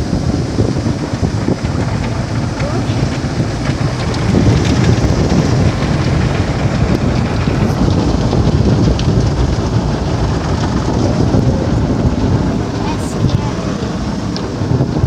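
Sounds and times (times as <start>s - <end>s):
heavy low rumble: 0.0s - 15.0s
water spraying on car: 0.0s - 15.0s.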